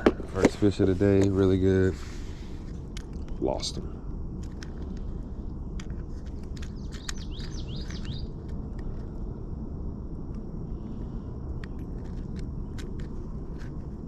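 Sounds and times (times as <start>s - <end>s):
low background rumble: 0.0s - 14.0s
bird chirping: 6.6s - 8.9s.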